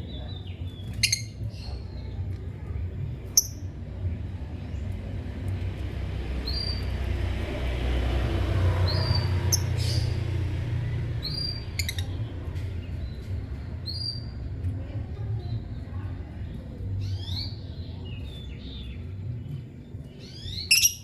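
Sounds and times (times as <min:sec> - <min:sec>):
steady low rumble: 0:00.0 - 0:20.8
lovebird high chirps: 0:00.8 - 0:01.6, 0:08.9 - 0:10.2, 0:11.2 - 0:12.2, 0:20.2 - 0:21.0.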